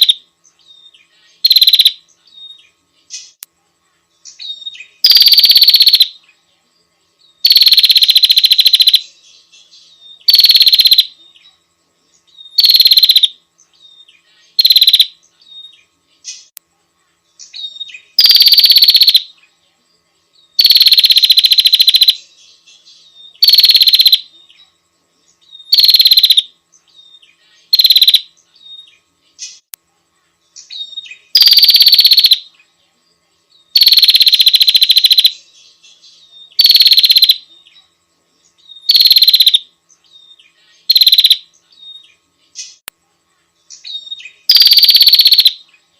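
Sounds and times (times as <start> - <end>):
bird trilled calls: 0.0 - 3.4, 4.3 - 6.2, 7.4 - 11.4, 12.3 - 16.5, 17.4 - 19.3, 20.6 - 24.3, 25.4 - 29.6, 30.6 - 32.5, 33.7 - 37.5, 38.6 - 39.6, 40.2 - 42.8, 43.7 - 45.6.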